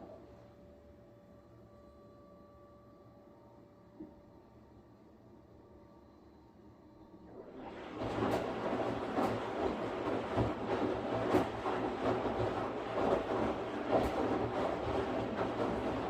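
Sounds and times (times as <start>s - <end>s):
washing machine churning: 7.3s - 16.0s.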